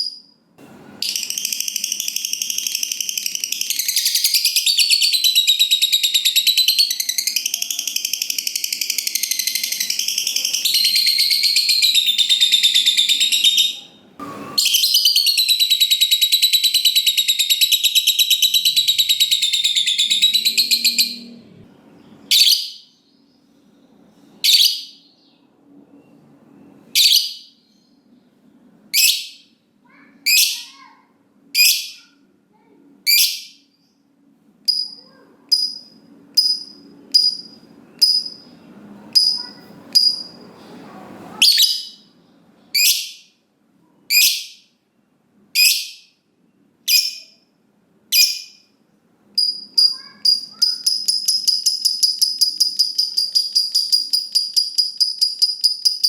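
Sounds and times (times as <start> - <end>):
bird chattering trill: 1.0 - 14.0, 14.6 - 21.3, 39.2 - 40.4, 49.4 - 56.0
sharp bird chirps: 1.0 - 21.3, 24.4 - 28.0, 39.2 - 40.4, 49.4 - 56.0.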